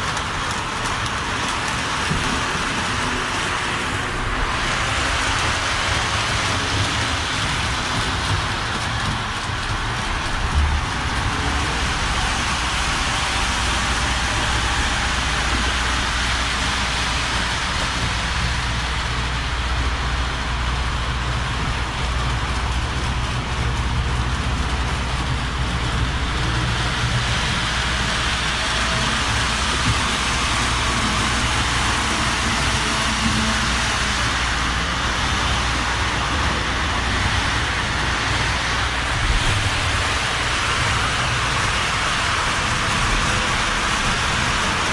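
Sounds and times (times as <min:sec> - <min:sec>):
model electric train running: 0:00.0 - 0:44.9.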